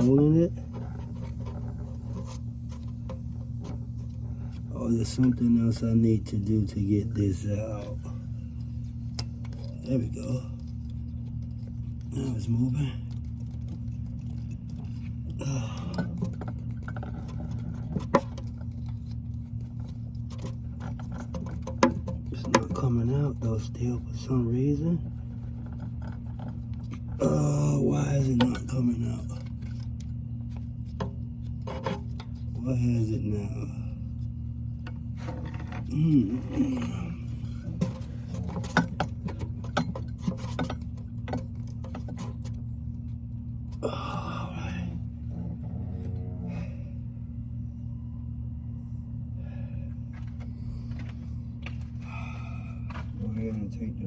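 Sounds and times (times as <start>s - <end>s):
steady low hum: 0.0s - 54.0s
solenoid clicking and knocking: 20.4s - 23.0s.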